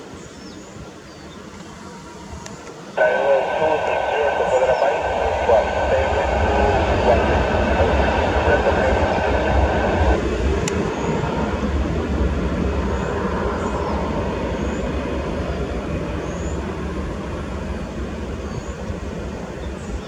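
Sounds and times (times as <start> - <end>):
jet engines roaring: 2.8 - 20.0.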